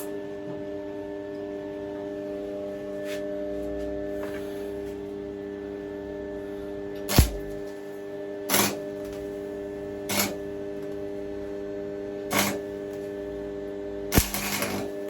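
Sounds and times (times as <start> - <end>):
welding arc crackling: 7.1 - 7.6, 14.1 - 14.9
welder humming: 7.1 - 7.8, 8.5 - 9.3, 10.0 - 10.9, 12.2 - 13.3, 14.0 - 15.0.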